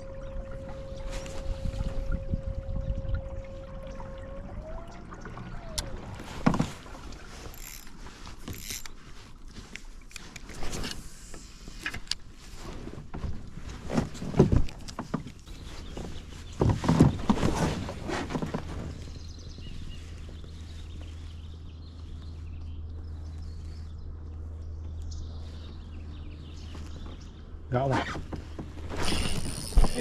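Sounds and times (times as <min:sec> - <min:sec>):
water splashing: 0:00.0 - 0:08.6.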